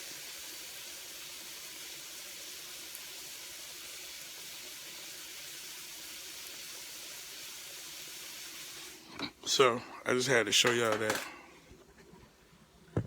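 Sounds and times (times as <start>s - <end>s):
dumplings sizzling in hot oil: 0.0s - 9.2s.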